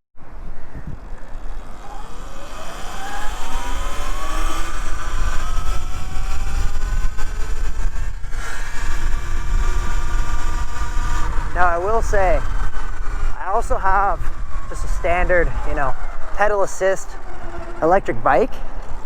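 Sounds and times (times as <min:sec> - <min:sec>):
wind rumble on microphone: 0:00.2 - 0:19.0
electric motor whining: 0:01.0 - 0:13.6.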